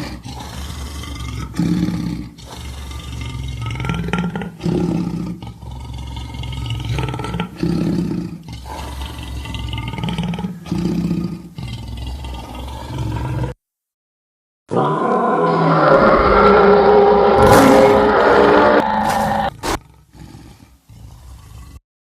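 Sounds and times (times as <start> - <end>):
deep monster roars: 14.7 - 20.6.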